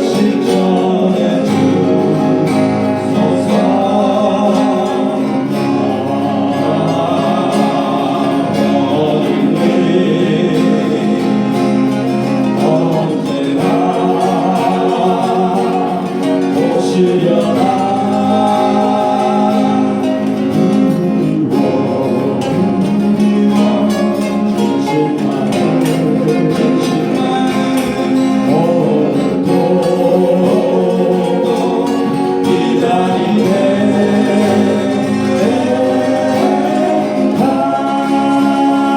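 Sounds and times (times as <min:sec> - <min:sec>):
acoustic guitars strumming: 0:00.0 - 0:38.9
group singing slow melody: 0:00.0 - 0:38.9.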